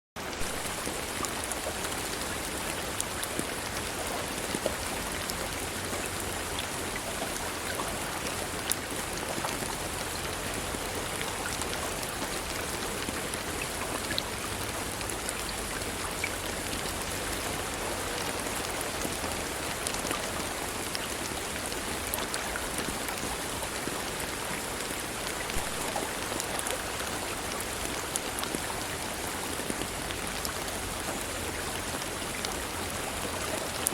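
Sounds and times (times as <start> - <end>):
steady rainfall: 0.2 - 33.9.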